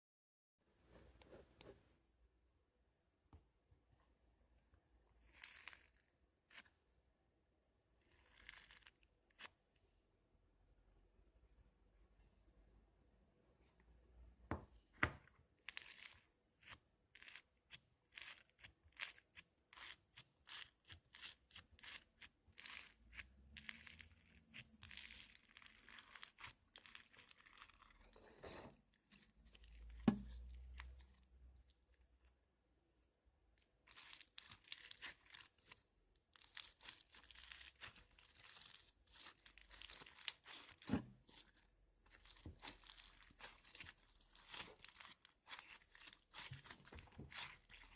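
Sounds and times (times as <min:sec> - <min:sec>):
crunchy slime crackling: 0:05.2 - 0:06.8, 0:08.0 - 0:09.6, 0:15.6 - 0:28.3, 0:33.8 - 0:47.9.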